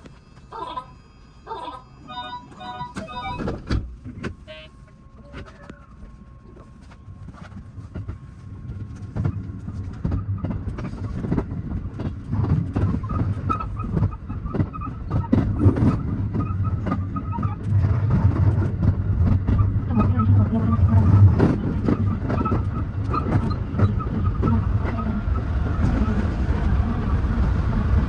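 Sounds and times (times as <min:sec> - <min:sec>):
train low rumble: 0:00.0 - 0:28.0
train wheels clacking over joints: 0:07.3 - 0:26.3.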